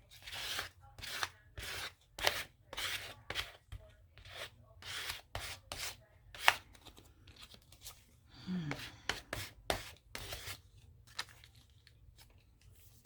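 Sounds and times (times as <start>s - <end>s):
scissors cutting paper: 0.2s - 3.6s.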